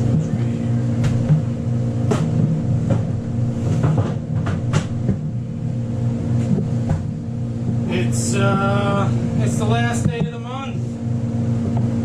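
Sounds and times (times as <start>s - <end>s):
motor humming: 0.0s - 12.0s
sharp knocks: 1.0s - 5.3s.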